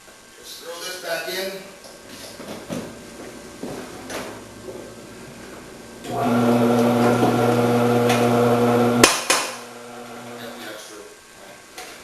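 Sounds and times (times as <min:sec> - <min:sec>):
electric motor humming: 0:04.4 - 0:10.7.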